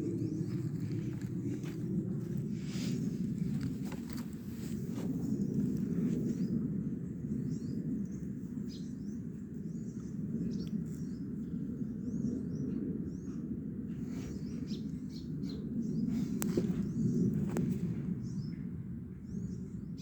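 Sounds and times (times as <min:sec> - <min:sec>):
small birds chirping: 0:00.0 - 0:18.6
steady low rumble: 0:00.0 - 0:20.0.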